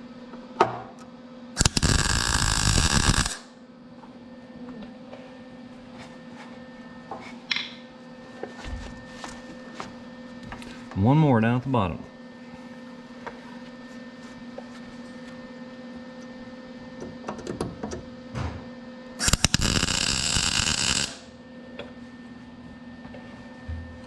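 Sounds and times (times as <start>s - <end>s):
arc striking clicks: 1.6s - 3.4s, 19.2s - 21.2s
welding arc crackling: 1.6s - 3.5s, 19.2s - 21.3s
welder steady hum: 1.6s - 3.6s, 17.9s - 24.0s.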